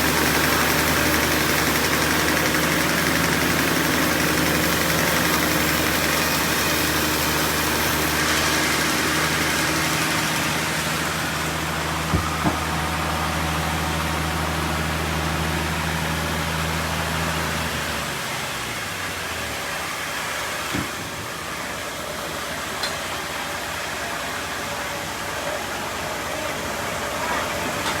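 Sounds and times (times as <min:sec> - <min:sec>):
sawmill engine idling: 0:00.0 - 0:28.0
sharp knocks: 0:12.1 - 0:12.7.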